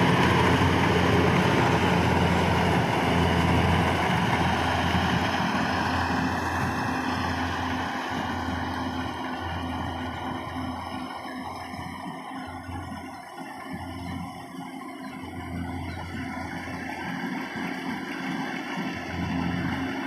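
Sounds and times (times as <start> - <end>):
combine harvester engine running: 0.0 - 20.0.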